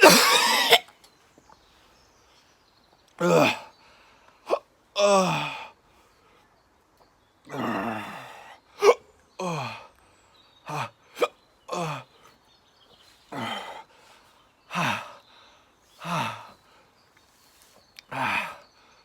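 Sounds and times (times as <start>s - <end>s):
man groaning and panting: 3.2s - 3.7s, 4.5s - 5.8s, 7.5s - 9.9s, 10.7s - 12.2s, 13.3s - 13.9s, 14.7s - 15.2s, 16.0s - 16.6s, 18.1s - 18.7s.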